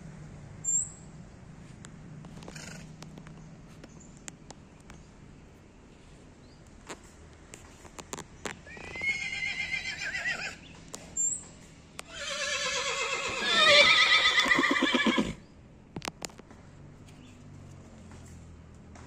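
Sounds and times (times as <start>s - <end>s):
horse whinnying: 8.7s - 10.6s, 12.1s - 15.4s.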